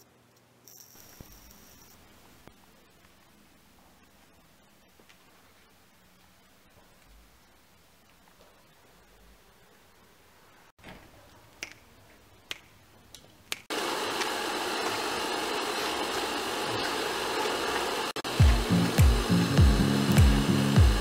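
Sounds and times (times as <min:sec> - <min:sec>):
heavy low beat thumps: 0:18.3 - 0:21.0.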